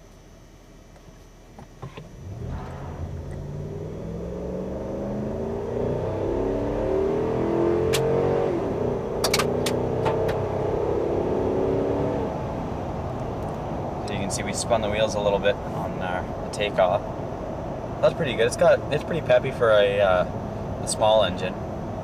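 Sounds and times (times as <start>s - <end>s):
truck engine accelerating: 2.1s - 14.3s.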